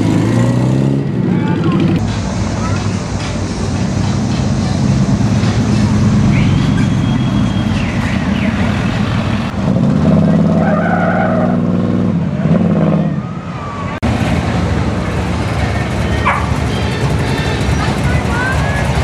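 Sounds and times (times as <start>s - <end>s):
cars and trucks driving past: 0.0s - 19.0s
loud engine passing: 0.0s - 19.0s.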